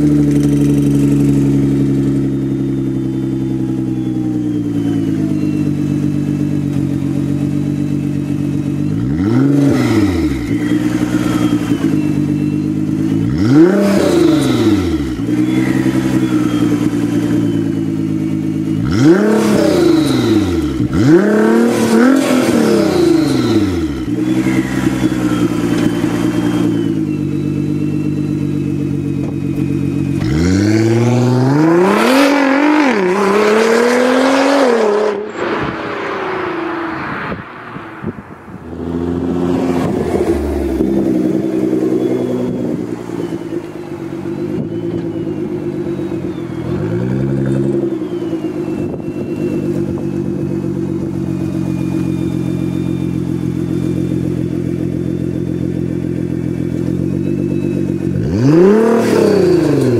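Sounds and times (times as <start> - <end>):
car engine idling: 0.0 - 9.5, 10.1 - 13.7, 14.4 - 31.7, 35.1 - 58.9
engine revving: 0.0 - 28.1, 29.2 - 59.9.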